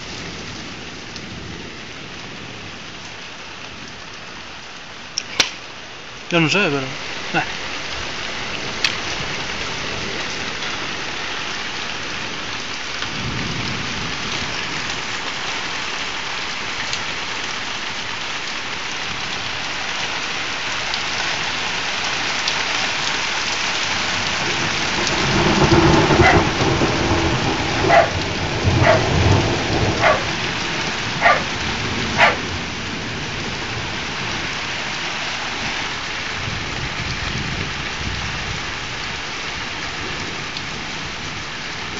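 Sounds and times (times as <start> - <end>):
heavy rain: 0.0 - 41.9
thunder rolling: 24.1 - 33.8.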